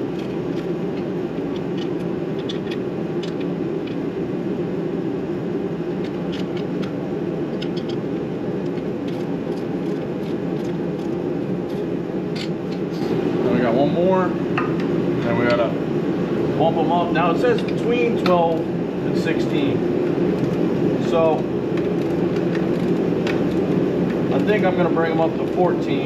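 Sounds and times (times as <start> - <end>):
steady mechanical whir: 0.0 - 26.0
hand tools clicking and tapping: 0.1 - 4.0, 7.6 - 8.0.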